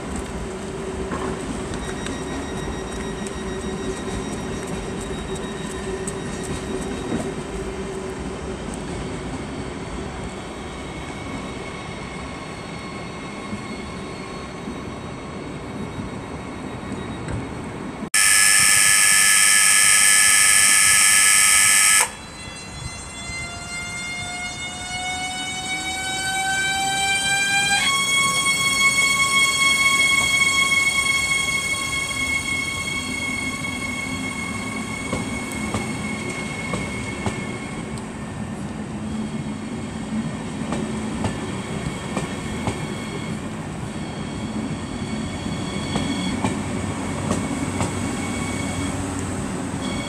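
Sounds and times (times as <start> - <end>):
train rumbling: 0.0 - 18.1, 22.2 - 50.0
electronic warning tone: 18.2 - 22.5
train traction motor whine: 18.2 - 39.9.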